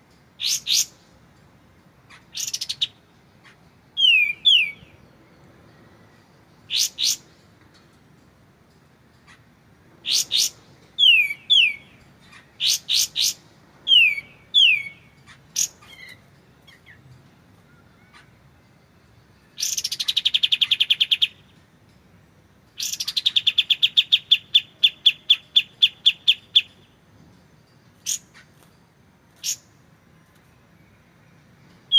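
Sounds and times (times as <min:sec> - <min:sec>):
songbird whistling: 0:00.4 - 0:01.0, 0:04.0 - 0:05.3, 0:06.1 - 0:07.2, 0:10.0 - 0:17.1, 0:19.4 - 0:21.5, 0:22.8 - 0:27.0
bird rattling trills: 0:27.9 - 0:29.8.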